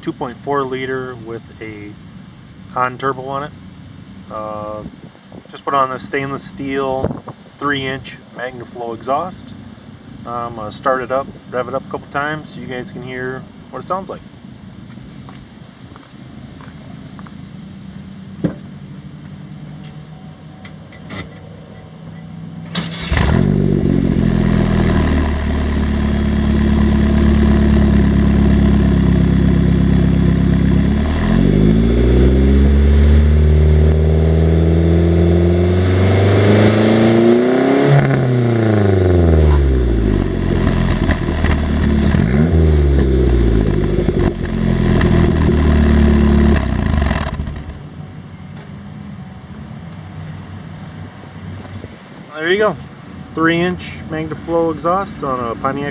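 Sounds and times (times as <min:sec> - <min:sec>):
car engine idling and revving: 0:16.7 - 0:55.9.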